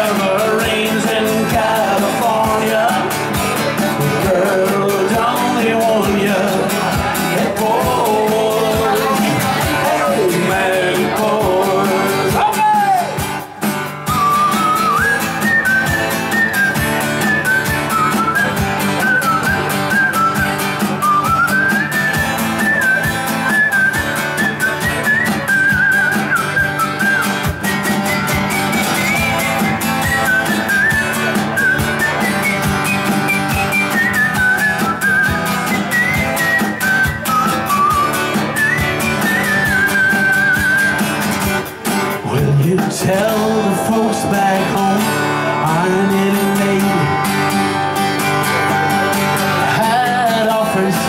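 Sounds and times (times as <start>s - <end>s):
strummed acoustic guitar: 0.0s - 51.0s
whistled melody: 14.0s - 41.4s.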